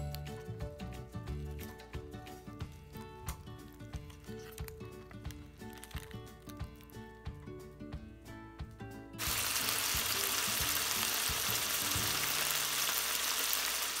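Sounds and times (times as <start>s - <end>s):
soft background music: 0.0s - 13.8s
food sizzling in a pan: 9.2s - 14.0s.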